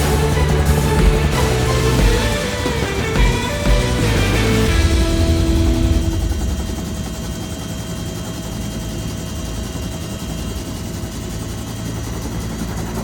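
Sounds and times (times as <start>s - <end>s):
music: 0.0s - 7.4s
thin steady whine: 0.0s - 12.0s
helicopter rotor chop: 0.0s - 13.0s.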